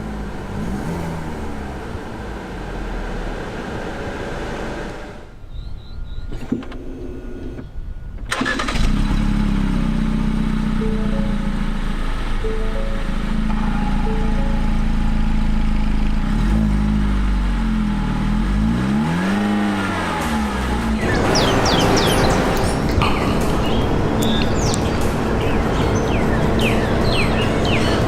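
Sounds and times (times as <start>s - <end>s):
car engine idling and revving: 0.0s - 5.4s, 8.3s - 28.0s
birds chirping: 4.1s - 8.2s, 19.2s - 28.0s
steady rushing noise: 20.8s - 28.0s.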